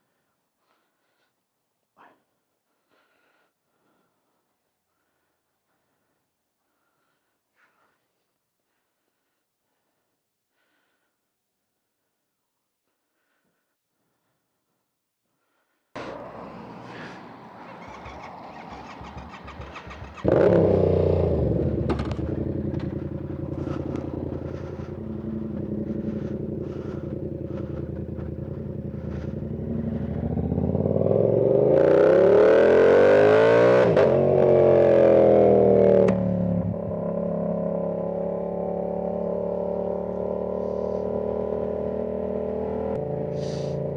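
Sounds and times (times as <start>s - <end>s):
motorcycle engine idling and revving: 16.0s - 43.9s.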